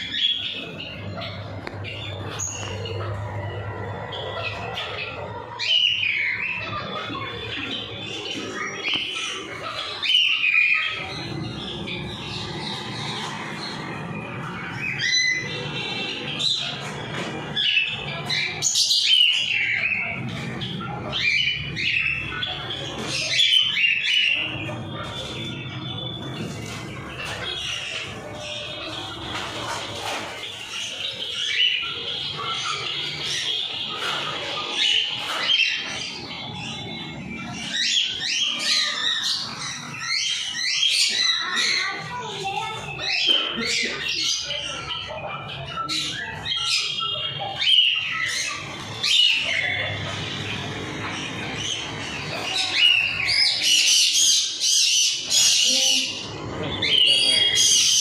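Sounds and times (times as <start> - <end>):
birds calling in an aviary: 0.0 - 58.0.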